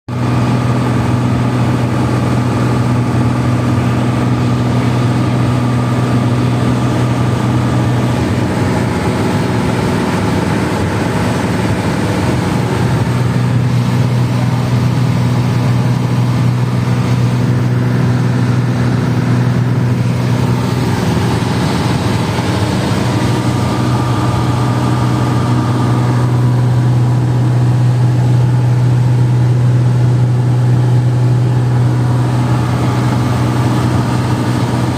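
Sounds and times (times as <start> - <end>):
strong low hum: 0.1 - 34.9
jet engines droning: 0.2 - 34.9
rushing air: 4.4 - 34.9.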